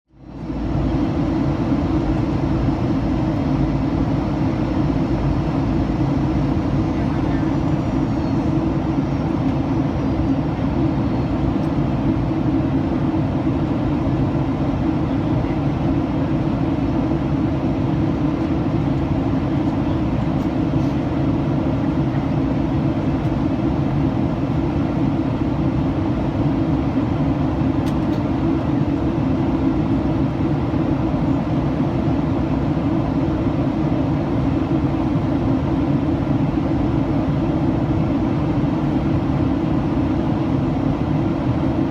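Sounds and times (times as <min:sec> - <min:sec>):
airplane cabin drone: 0:00.1 - 0:41.9.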